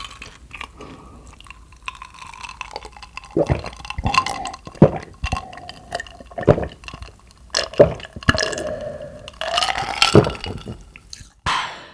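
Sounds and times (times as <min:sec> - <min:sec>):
squishy chewing: 0:00.0 - 0:11.4
mouth smacks: 0:09.3 - 0:11.6.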